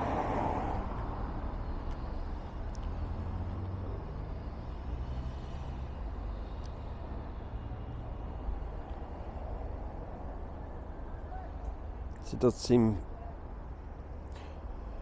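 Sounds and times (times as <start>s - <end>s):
vehicle engine humming: 0.0s - 12.0s
traffic noise: 0.0s - 15.0s.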